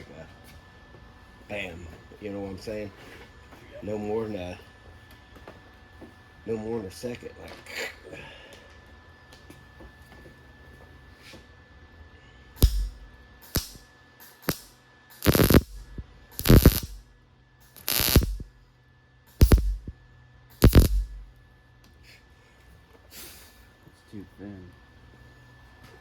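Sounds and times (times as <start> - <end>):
welder arc crackling: 12.6 - 17.0, 17.6 - 18.5, 19.4 - 19.9, 20.6 - 21.3.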